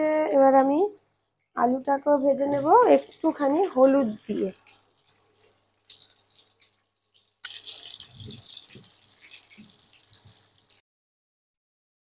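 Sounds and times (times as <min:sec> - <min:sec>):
potatoes sizzling in oil: 0:01.7 - 0:10.8.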